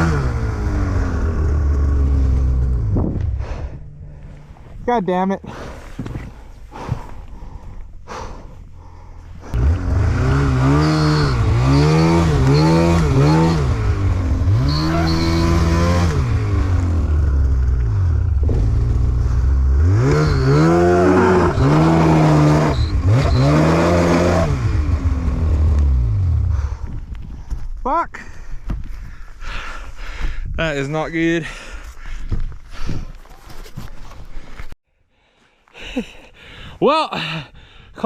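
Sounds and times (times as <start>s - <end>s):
snowmobile engine revving: 0.0s - 3.9s, 9.4s - 26.8s.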